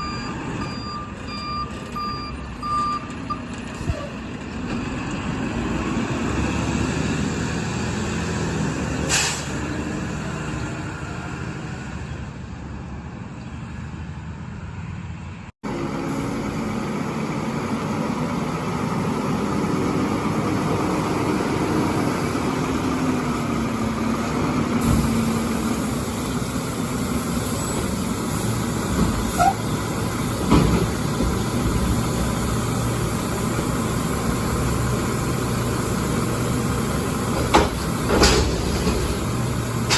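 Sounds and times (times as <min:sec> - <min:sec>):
short sharp hiss: 0:09.1 - 0:09.5
garbage truck engines running: 0:15.6 - 0:39.9.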